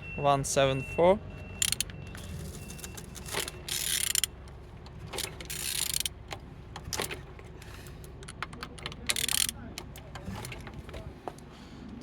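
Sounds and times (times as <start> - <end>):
ratchet wrench strokes: 1.6 - 1.9, 3.7 - 4.3, 5.5 - 6.1, 9.1 - 9.6
mechanical clicks: 8.2 - 10.1.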